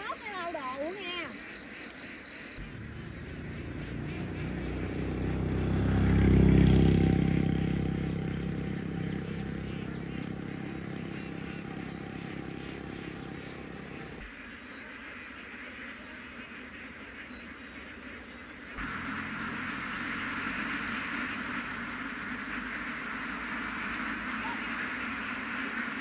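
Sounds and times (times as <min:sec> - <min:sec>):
vehicle engine passing by: 0:02.6 - 0:14.4, 0:18.7 - 0:26.0.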